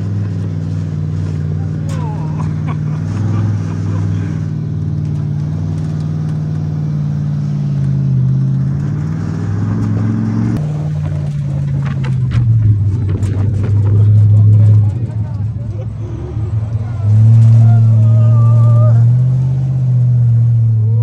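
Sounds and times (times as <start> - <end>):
truck engine running: 0.0 - 21.0
sharp knocks and rattles: 10.9 - 15.2.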